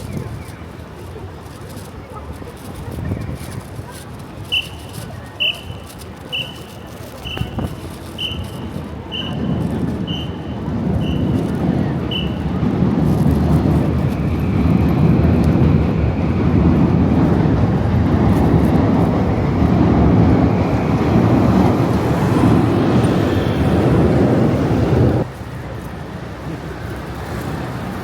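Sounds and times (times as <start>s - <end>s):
heavy vehicle rumble: 0.0s - 28.0s.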